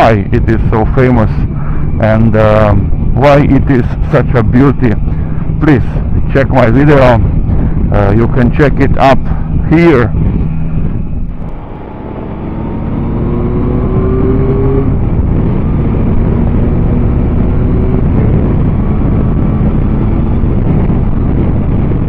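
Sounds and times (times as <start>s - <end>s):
motorcycle engine accelerating: 0.0s - 22.0s
wind rush on microphone: 0.0s - 22.0s.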